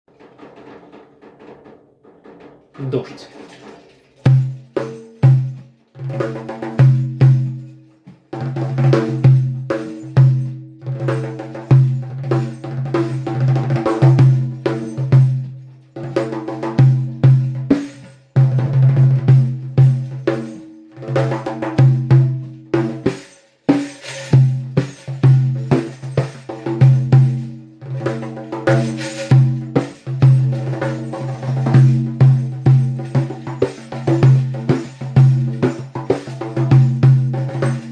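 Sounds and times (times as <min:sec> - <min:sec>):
tuned percussion struck by hand: 0:04.2 - 0:37.9.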